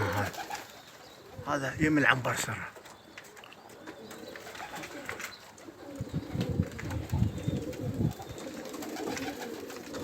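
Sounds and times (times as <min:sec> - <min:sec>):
pigeons cooing: 0:00.0 - 0:01.6, 0:03.2 - 0:10.0.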